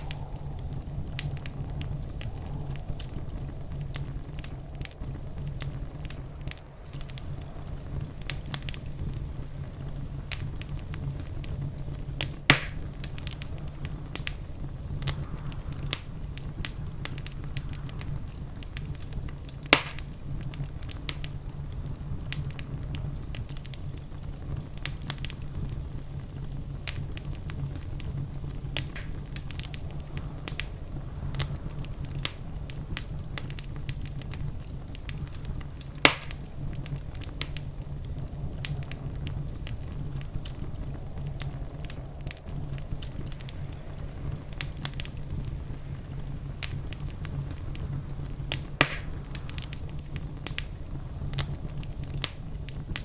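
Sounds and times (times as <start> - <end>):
fire crackling in fireplace: 0.0 - 53.0
low rumble of fire: 0.0 - 53.0.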